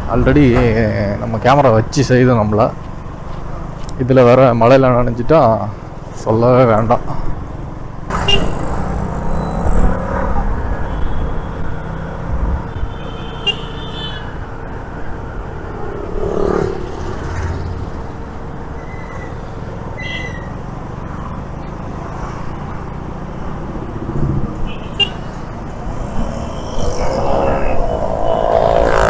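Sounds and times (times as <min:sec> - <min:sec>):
vehicle horn toots: 0:08.1 - 0:08.8
motorcycle engine: 0:08.1 - 0:12.2, 0:25.1 - 0:29.0.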